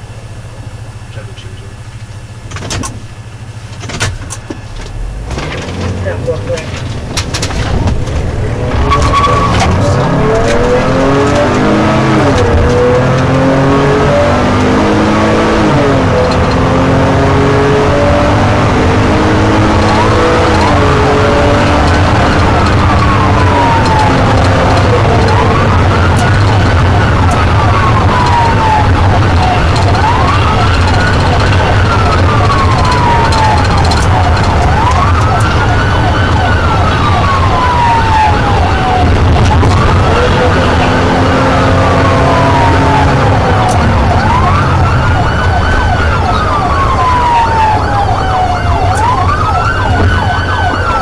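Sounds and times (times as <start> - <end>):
vehicle engines revving: 0.0 - 51.0
low rumble: 4.4 - 13.0
police siren wail: 6.0 - 51.0
police siren yelp: 8.5 - 51.0.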